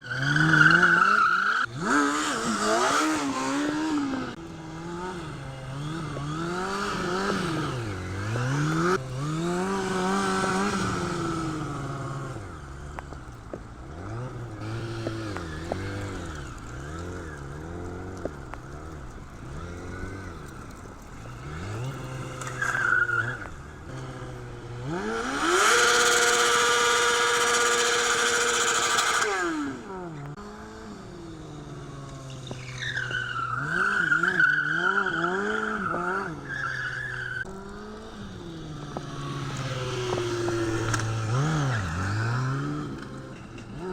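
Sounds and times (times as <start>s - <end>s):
tyre squeal: 0.0s - 4.0s, 21.2s - 24.3s, 32.3s - 37.6s
motorcycle engine revving: 0.0s - 43.9s.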